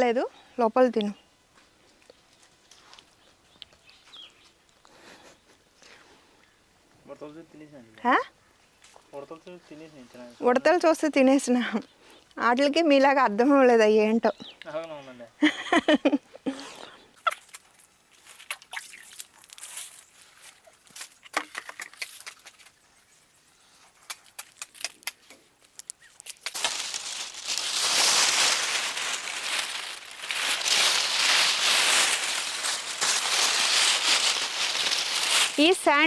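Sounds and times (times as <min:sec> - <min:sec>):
leaves rubbed and crumpled by hand: 0:18.2 - 0:20.6, 0:26.0 - 0:36.0
faint clicks and rustles: 0:23.9 - 0:36.0.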